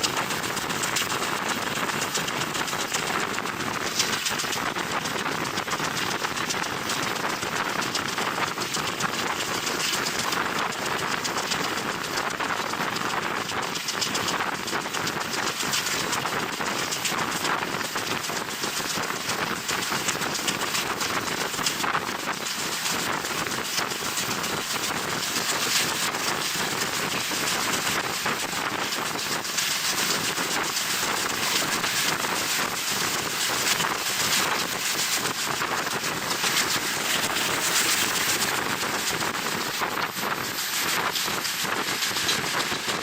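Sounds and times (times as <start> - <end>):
train rushing: 0.0 - 7.0, 19.3 - 43.0
wind buffeting microphone: 0.0 - 43.0.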